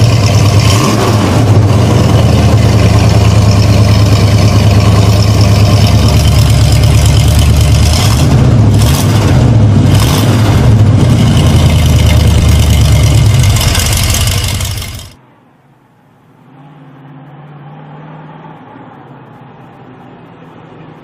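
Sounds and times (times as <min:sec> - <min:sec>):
muscle car engine rumble: 0:00.0 - 0:15.2.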